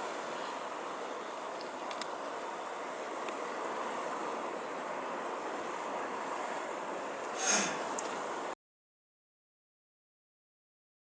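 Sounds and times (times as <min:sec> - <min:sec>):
blizzard wind rushing: 0:00.0 - 0:08.6.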